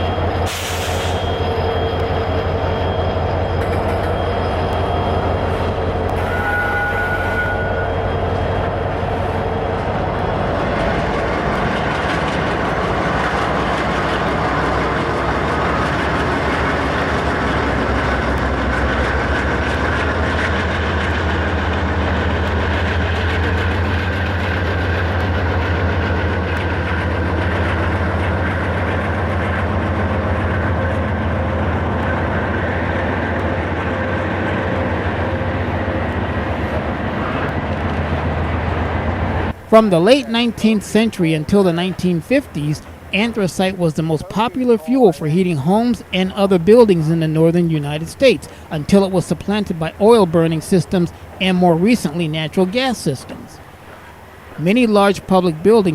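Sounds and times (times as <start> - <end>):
train wheels rumbling: 0.0 - 55.9
low constant drone: 29.4 - 55.9.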